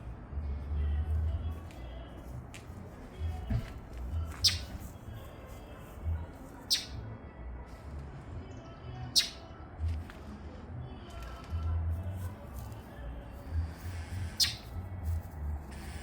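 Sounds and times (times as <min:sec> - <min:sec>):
dull low rumbles: 0:00.0 - 0:05.3, 0:07.0 - 0:16.0
bird giving sharp high calls: 0:04.4 - 0:04.7, 0:06.7 - 0:07.0, 0:09.2 - 0:09.5, 0:14.0 - 0:14.7.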